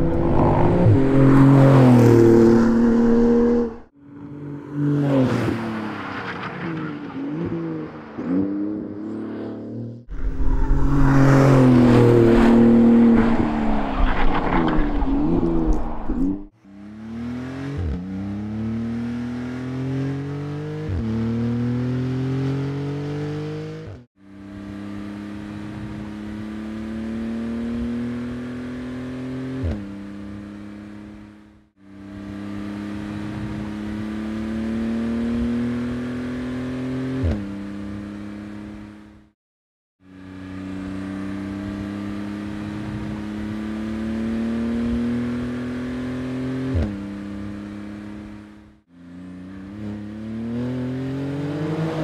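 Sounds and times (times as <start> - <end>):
sports car engine accelerating: 0.0 - 3.9, 40.1 - 52.0.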